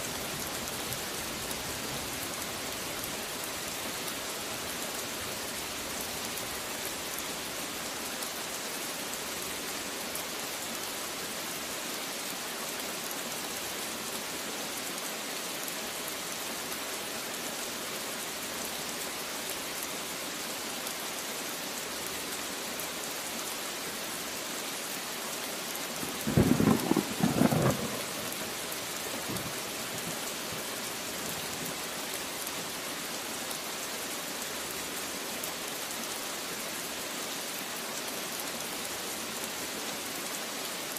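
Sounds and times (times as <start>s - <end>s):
rain hissing: 0.0s - 40.9s
thunder clap: 26.3s - 28.4s.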